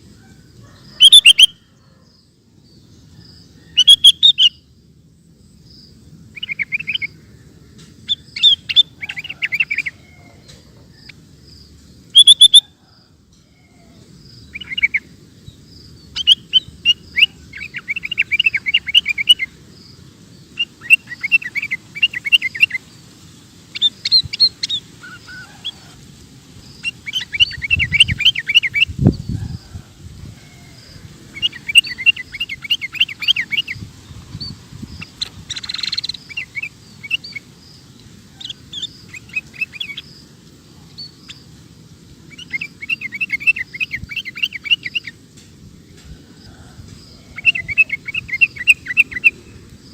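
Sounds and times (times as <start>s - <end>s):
bulbul chattering song: 1.0s - 1.6s, 3.7s - 4.8s, 5.8s - 12.8s, 14.3s - 25.8s, 26.6s - 29.4s, 30.8s - 45.4s, 47.2s - 49.9s.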